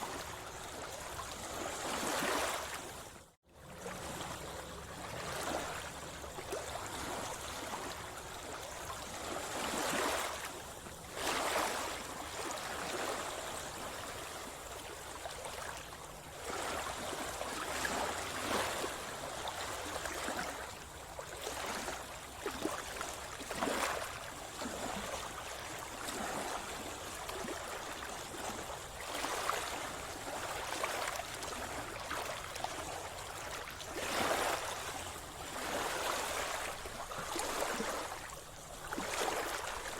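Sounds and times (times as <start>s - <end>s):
water splashing around swimmer: 3.8s - 39.9s.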